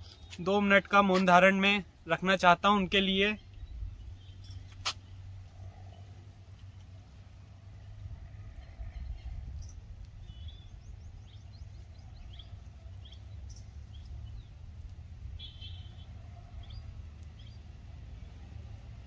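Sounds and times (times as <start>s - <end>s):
birds chirping: 0.0s - 5.2s, 8.6s - 18.4s.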